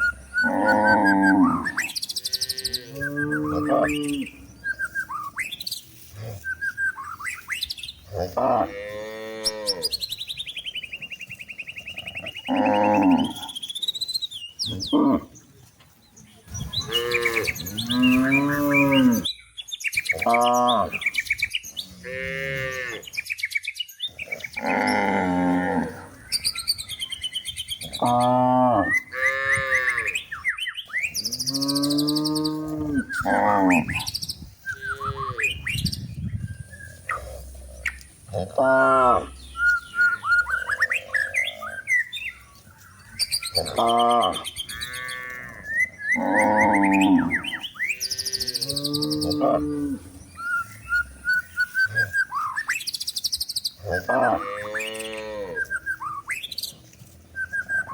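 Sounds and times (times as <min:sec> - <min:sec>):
birds chirping: 0:00.0 - 0:57.9
cows mooing: 0:00.4 - 0:04.5, 0:08.0 - 0:10.1, 0:11.9 - 0:13.6, 0:14.7 - 0:15.4, 0:16.8 - 0:19.3, 0:21.9 - 0:23.1, 0:24.4 - 0:26.2, 0:27.8 - 0:30.2, 0:31.2 - 0:35.8, 0:37.1 - 0:41.8, 0:43.4 - 0:50.2, 0:53.8 - 0:55.7.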